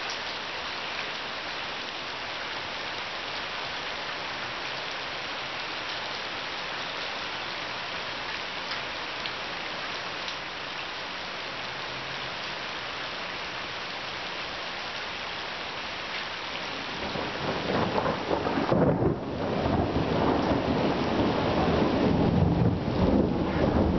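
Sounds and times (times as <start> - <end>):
heavy rain pouring: 0.0 - 23.9
low rumble of thunder: 16.9 - 23.9.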